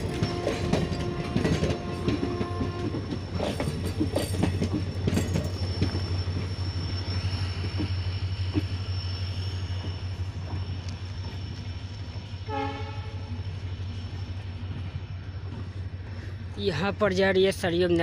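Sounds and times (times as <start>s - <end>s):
train wheels clattering over joints: 0.0s - 11.8s
train rumbling: 0.0s - 18.0s.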